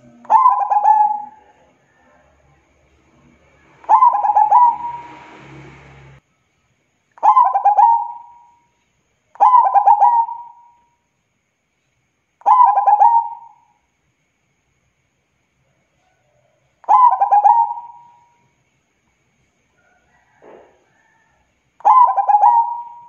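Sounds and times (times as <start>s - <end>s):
dove cooing: 0.0s - 2.2s, 3.8s - 5.2s, 7.2s - 8.5s, 9.4s - 10.7s, 12.5s - 13.6s, 16.8s - 18.2s, 21.8s - 23.0s.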